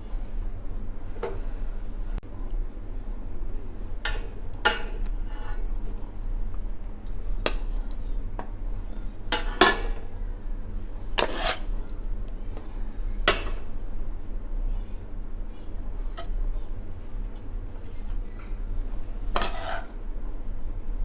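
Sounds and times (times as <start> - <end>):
metal spoon scraping a pot: 5.2 - 5.7, 11.2 - 11.7, 19.3 - 20.0.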